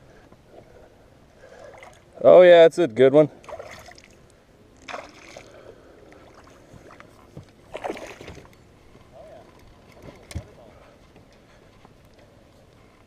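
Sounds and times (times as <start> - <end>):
fish splashing in water: 3.4 - 4.2, 4.8 - 7.0, 7.7 - 8.5.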